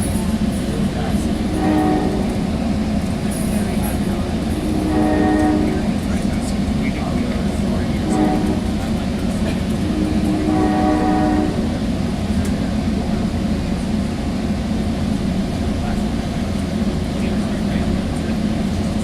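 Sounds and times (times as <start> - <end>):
train rumble inside passenger car: 0.0 - 19.0
train horn: 1.4 - 2.6, 4.4 - 6.2, 7.7 - 11.8.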